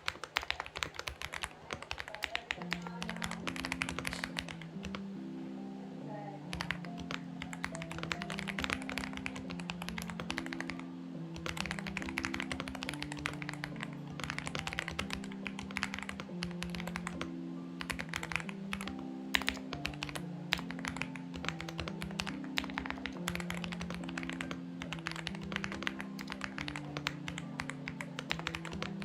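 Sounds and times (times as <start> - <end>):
soft background music: 0.0 - 29.0.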